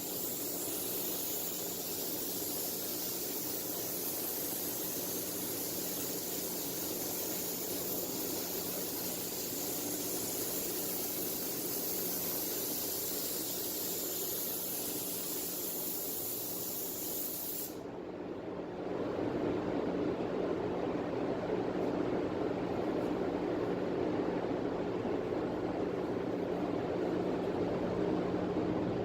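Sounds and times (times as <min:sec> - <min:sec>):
spray gun hissing: 0:00.0 - 0:17.8
steady rush of air: 0:00.0 - 0:29.0.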